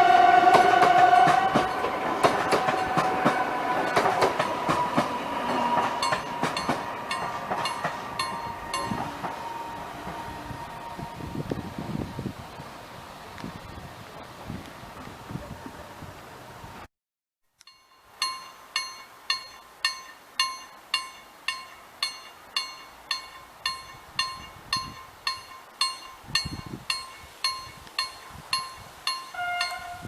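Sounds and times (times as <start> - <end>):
crossing warning bell ringing: 1.0 - 11.3, 17.6 - 30.0.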